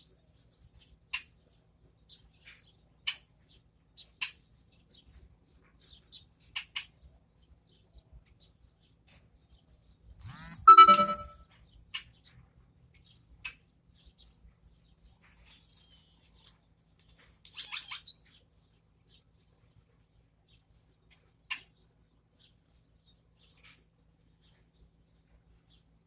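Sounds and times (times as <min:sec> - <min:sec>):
pet birds chirping: 0:13.0 - 0:16.8, 0:17.4 - 0:26.0.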